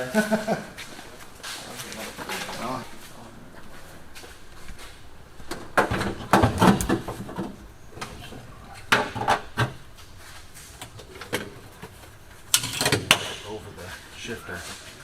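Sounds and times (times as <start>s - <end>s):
dashboard knocks and clatter: 5.4s - 8.2s.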